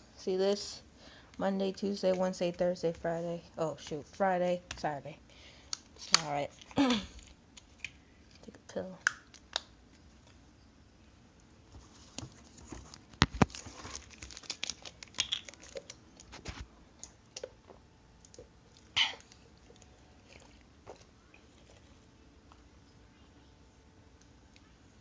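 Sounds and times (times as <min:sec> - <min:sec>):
pills rattling: 0:13.4 - 0:16.3.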